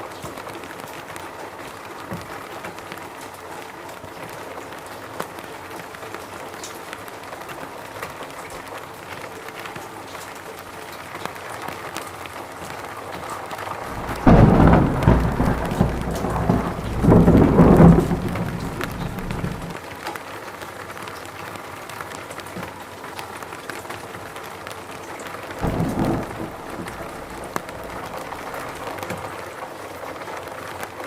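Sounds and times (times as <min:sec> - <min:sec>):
steady rain: 0:00.0 - 0:31.0
deep rumble of thunder: 0:13.8 - 0:19.8, 0:25.6 - 0:29.2.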